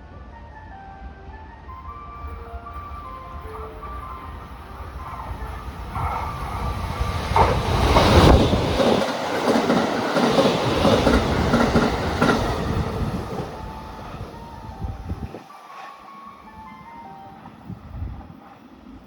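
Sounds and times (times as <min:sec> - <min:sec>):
train wheels clacking over rail joints: 0:05.9 - 0:13.1.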